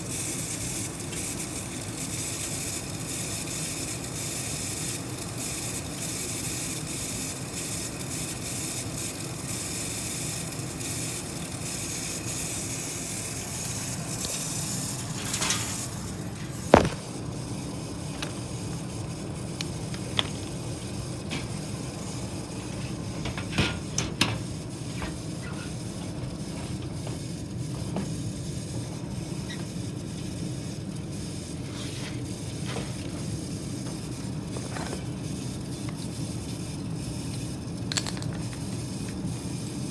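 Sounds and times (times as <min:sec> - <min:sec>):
inducer motor grinding: 0:13.4 - 0:26.2.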